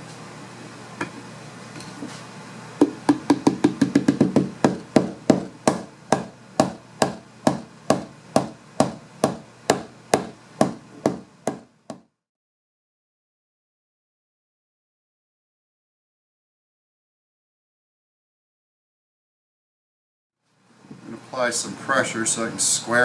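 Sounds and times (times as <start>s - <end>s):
hammer tapping on wood: 2.8s - 12.1s.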